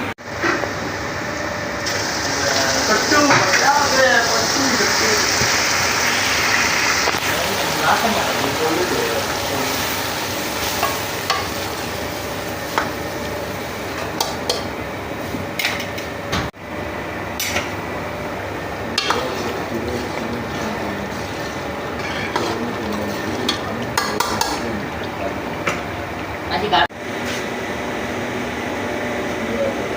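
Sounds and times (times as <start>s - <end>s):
food sizzling in hot oil: 1.8s - 14.7s.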